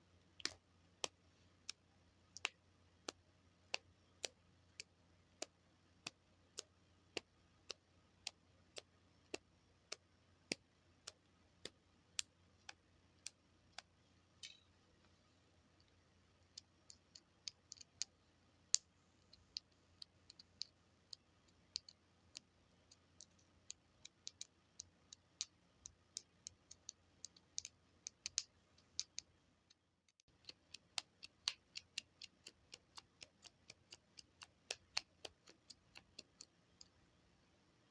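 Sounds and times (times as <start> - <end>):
small buttons clicking: 2.4 - 14.8.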